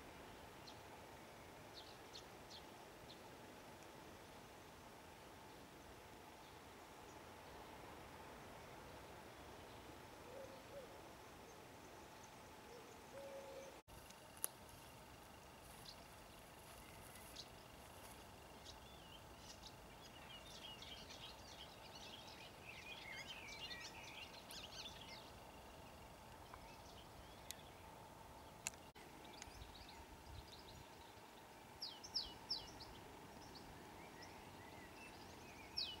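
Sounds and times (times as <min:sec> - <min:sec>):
small birds twittering: 0:15.6 - 0:36.0.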